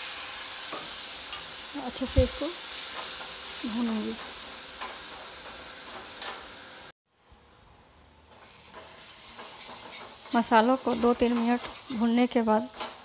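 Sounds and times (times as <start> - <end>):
paste sizzling in hot oil: 0.0 - 6.9, 7.5 - 13.0
spatula stirring and scraping: 8.3 - 13.0.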